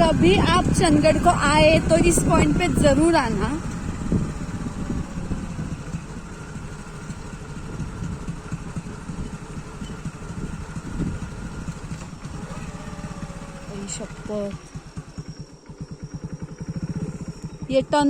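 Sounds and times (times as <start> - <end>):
wind buffeting microphone: 0.0 - 14.6
motorbike engine running: 0.0 - 18.0.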